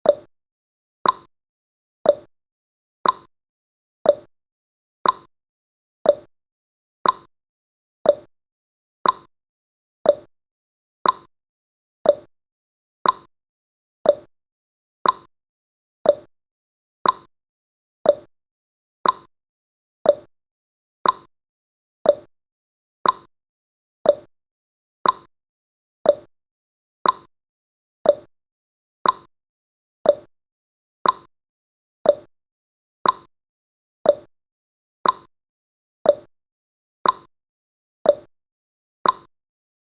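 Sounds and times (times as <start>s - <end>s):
timer ticking clicks: 0.0s - 0.3s, 1.0s - 1.3s, 2.0s - 2.3s, 3.0s - 3.3s, 4.0s - 4.3s, 5.0s - 5.3s, 6.0s - 6.3s, 7.0s - 7.3s, 8.0s - 8.3s, 9.0s - 9.3s, 10.0s - 10.3s, 11.0s - 11.3s, 12.0s - 12.3s, 13.0s - 13.3s, 14.0s - 14.3s, 15.0s - 15.3s, 16.0s - 16.3s, 17.0s - 17.3s, 18.0s - 18.3s, 19.0s - 19.3s, 20.0s - 20.3s, 21.0s - 21.3s, 22.0s - 22.3s, 23.0s - 23.3s, 24.0s - 24.3s, 25.0s - 25.3s, 26.0s - 26.3s, 27.0s - 27.3s, 28.0s - 28.3s, 29.0s - 29.3s, 30.0s - 30.3s, 31.0s - 31.3s, 32.0s - 32.3s, 33.0s - 33.3s, 34.0s - 34.3s, 35.0s - 35.3s, 36.0s - 36.3s, 37.0s - 37.3s, 38.0s - 38.3s, 39.0s - 39.3s.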